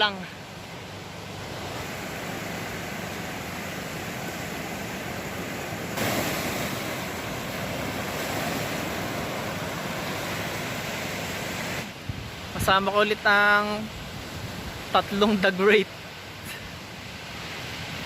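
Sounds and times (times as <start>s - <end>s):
ocean surf washing ashore: 0.0s - 18.0s
wind buffeting microphone: 12.0s - 12.8s.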